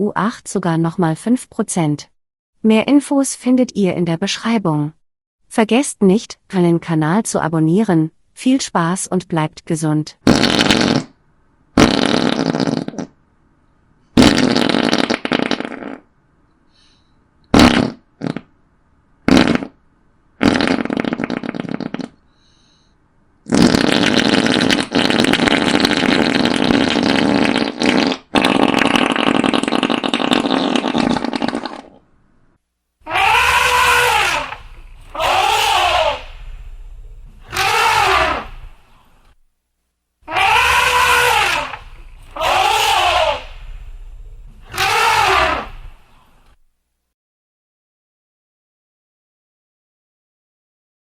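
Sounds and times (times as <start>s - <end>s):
fart sound effects: 10.2s - 11.2s, 11.8s - 13.2s, 14.2s - 16.1s, 17.5s - 18.5s, 19.3s - 19.8s, 20.4s - 22.2s, 23.5s - 32.0s, 33.1s - 39.0s, 40.3s - 46.2s.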